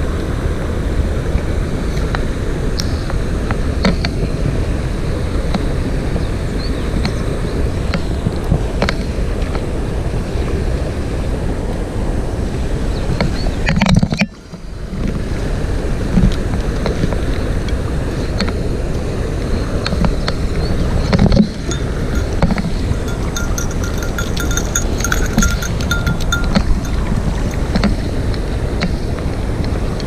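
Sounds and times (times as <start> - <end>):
wind buffeting microphone: 14.8 - 30.0.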